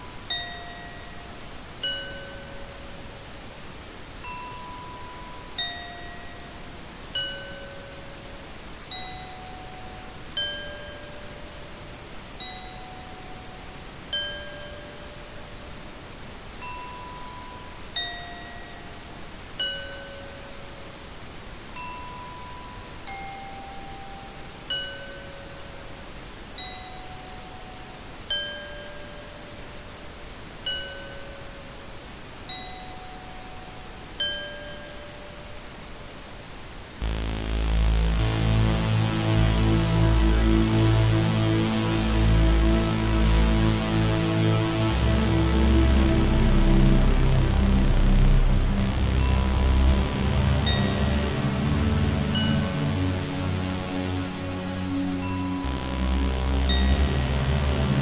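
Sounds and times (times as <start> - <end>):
steady hiss: 0.0 - 58.0
struck bell-like tones: 49.1 - 51.5, 55.2 - 58.0.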